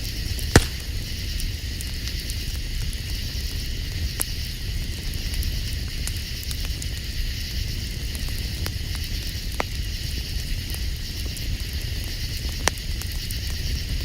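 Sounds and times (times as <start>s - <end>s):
campfire crackling: 0.6s - 1.1s.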